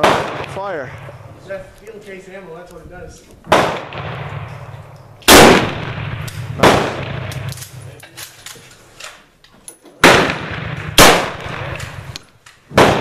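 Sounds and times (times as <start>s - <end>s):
revolver gunshots with echo: 0.0s - 1.3s, 3.5s - 8.0s, 10.0s - 13.0s.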